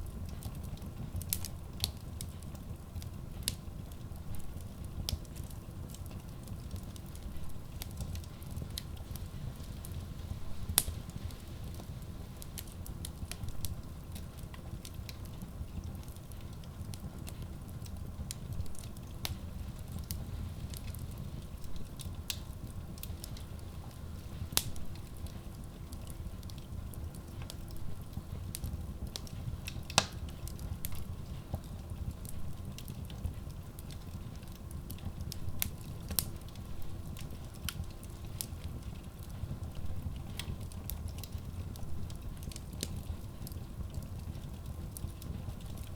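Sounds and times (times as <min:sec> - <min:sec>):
logs crackling and popping: 0:00.0 - 0:45.9
low rumble of flames: 0:00.0 - 0:45.9.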